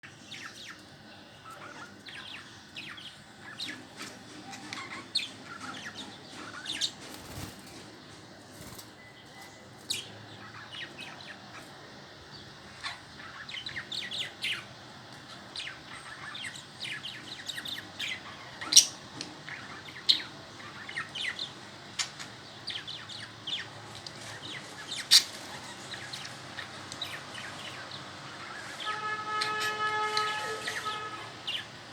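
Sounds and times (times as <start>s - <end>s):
budgerigars chirping: 0.0s - 7.6s, 8.6s - 31.9s
loud sharp bird calls: 8.6s - 31.9s.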